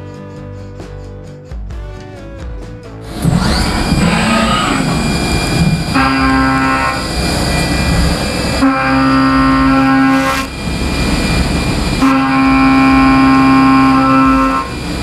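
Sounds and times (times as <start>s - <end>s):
milling machine pitched whine: 3.0s - 15.0s.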